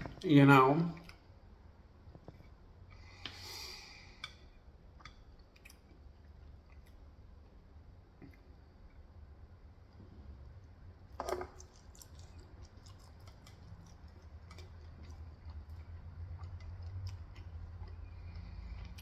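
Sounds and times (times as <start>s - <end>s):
chewing with mouth clicks: 5.0s - 7.6s, 11.4s - 19.0s.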